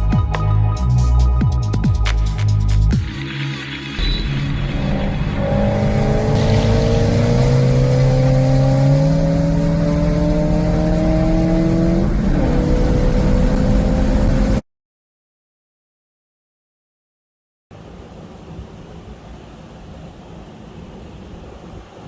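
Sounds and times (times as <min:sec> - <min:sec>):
car engine accelerating: 0:03.1 - 0:14.6.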